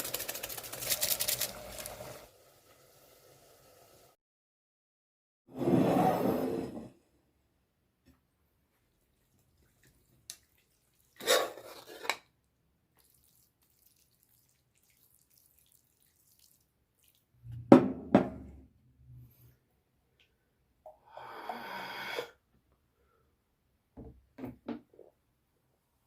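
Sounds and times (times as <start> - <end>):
wet eating sounds: 9.0 - 11.9, 12.9 - 17.3.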